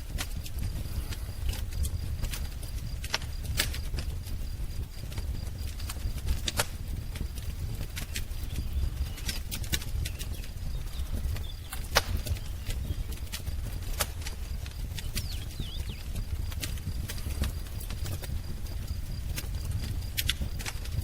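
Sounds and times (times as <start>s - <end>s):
wood fire crackling: 0.0s - 21.0s
faint bird chirp: 8.0s - 13.5s, 14.7s - 18.2s.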